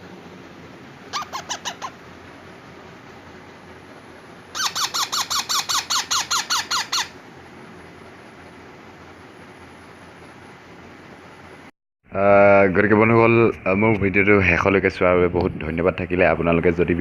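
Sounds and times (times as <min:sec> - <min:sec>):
parrot chicks squawking: 0:01.1 - 0:02.0, 0:04.6 - 0:07.2.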